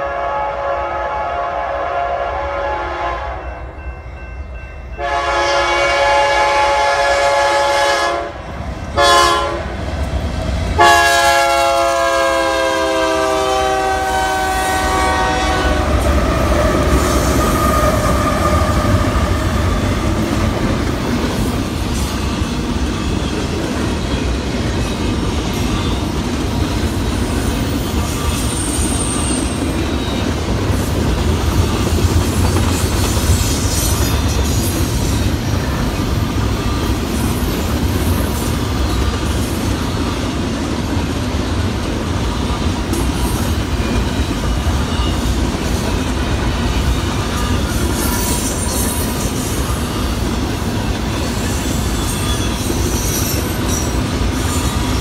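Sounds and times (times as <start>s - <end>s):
locomotive horn blasts: 0.0s - 3.6s, 5.0s - 8.4s, 9.0s - 9.7s, 10.8s - 19.3s
train cars rumbling and clacking: 2.6s - 55.0s.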